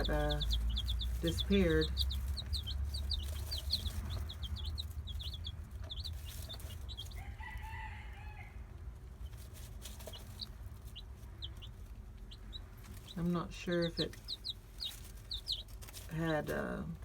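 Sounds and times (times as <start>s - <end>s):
adult chicken calling: 0.0s - 8.7s
chicks peeping: 0.0s - 17.0s.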